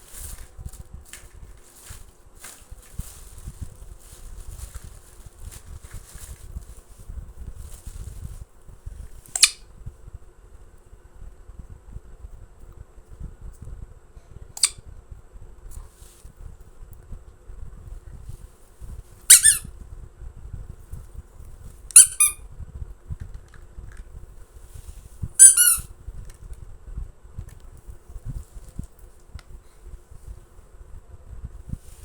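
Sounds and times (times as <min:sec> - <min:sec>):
faint low rumble: 0:00.0 - 0:32.0
high-pitched squeaks: 0:19.3 - 0:19.7, 0:22.0 - 0:22.4, 0:25.4 - 0:25.9.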